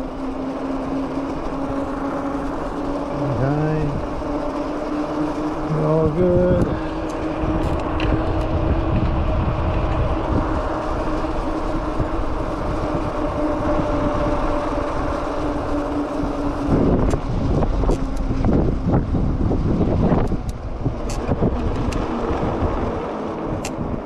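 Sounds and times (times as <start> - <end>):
electric bike motor whine: 0.0 - 24.0
gusty wind noise: 0.0 - 24.0
tyre road noise: 0.0 - 24.0
wind rumble on microphone: 0.0 - 24.0.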